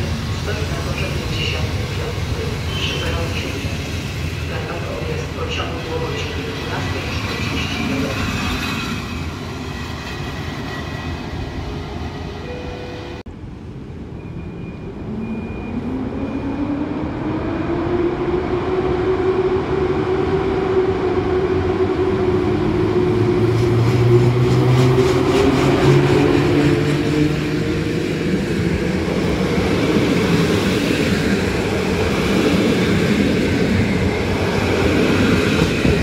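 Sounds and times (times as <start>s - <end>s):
train coaches rolling on rails: 0.0s - 12.2s, 23.2s - 36.0s
train passing with rising hum: 0.0s - 36.0s.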